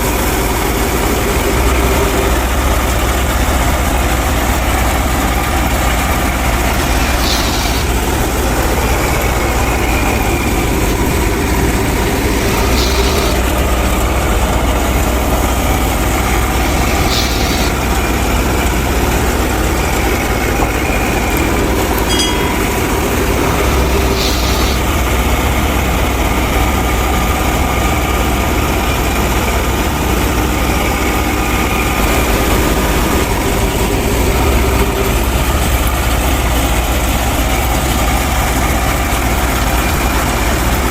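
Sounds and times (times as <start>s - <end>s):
engine idling with low rumble: 0.0s - 40.9s
brief hiss: 7.1s - 8.0s, 12.5s - 13.4s, 16.8s - 17.8s, 23.6s - 24.9s.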